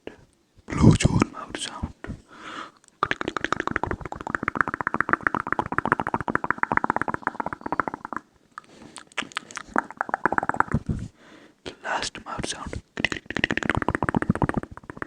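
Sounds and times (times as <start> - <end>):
wet mouth clicks and smacks: 2.8 - 11.0, 13.0 - 15.0.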